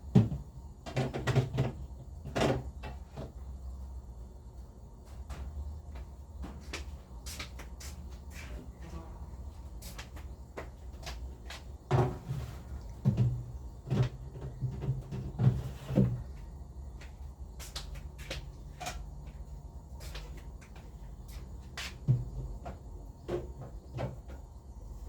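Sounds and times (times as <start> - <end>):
household items knocking and bumping: 0.1 - 3.3, 11.9 - 16.2.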